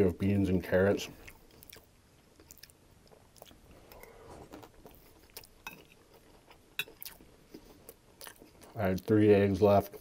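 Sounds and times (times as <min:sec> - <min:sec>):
chewing crispy food: 0:01.1 - 0:10.0.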